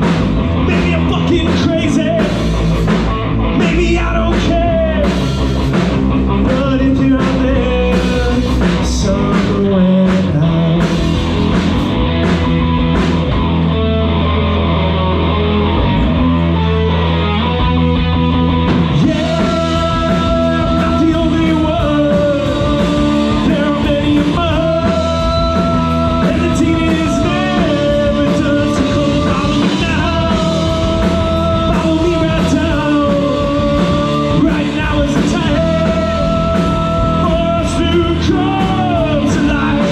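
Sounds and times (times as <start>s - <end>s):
live rock band playing: 0.0s - 39.9s
person singing: 6.3s - 11.4s, 18.8s - 39.9s.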